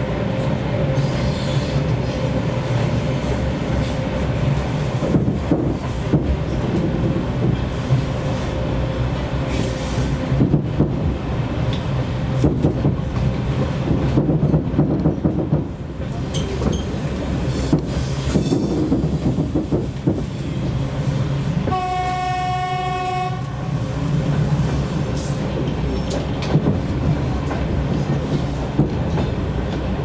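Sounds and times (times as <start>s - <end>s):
train rumbling: 0.0s - 30.0s
train horn blast: 21.7s - 23.7s.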